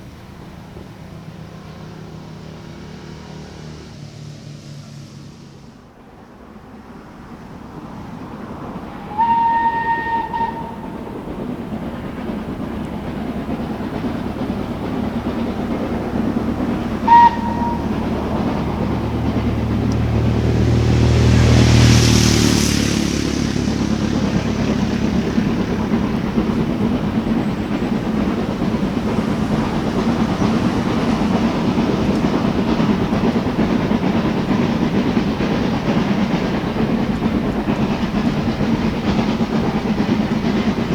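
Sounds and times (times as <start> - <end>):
coaches rumbling and clattering: 0.0 - 40.9
locomotive passing: 0.0 - 40.9
steam locomotive whistle: 8.4 - 12.2, 12.8 - 36.3.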